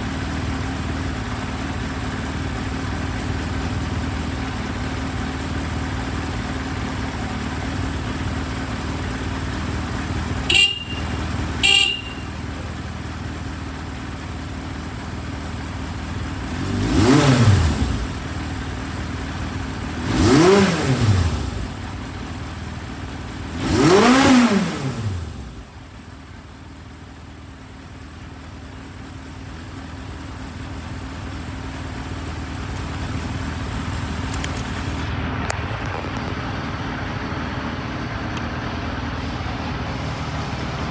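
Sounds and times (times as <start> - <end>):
motorcycle engine revving: 0.0 - 26.1, 28.6 - 40.9
motorcycle engine idling: 0.0 - 40.9
motorcycle horn beeps: 10.3 - 13.1.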